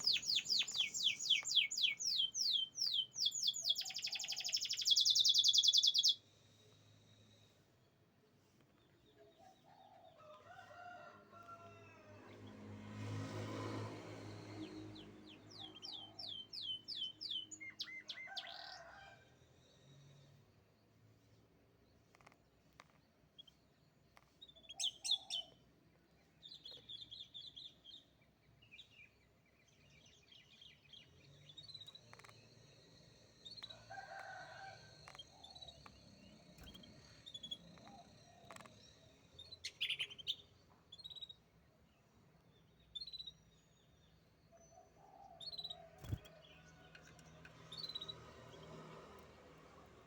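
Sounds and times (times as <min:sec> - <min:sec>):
canary singing: 0:00.0 - 0:06.2, 0:15.4 - 0:18.8, 0:35.0 - 0:41.4.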